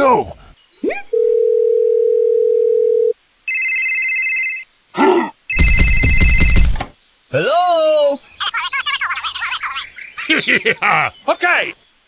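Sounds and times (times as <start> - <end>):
electronic phone ringing: 1.2 - 4.6, 5.5 - 6.8.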